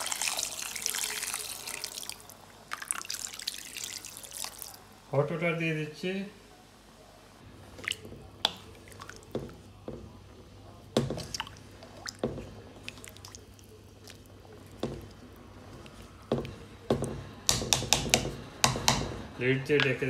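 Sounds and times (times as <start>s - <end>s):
stirring food in water: 7.5s - 19.9s.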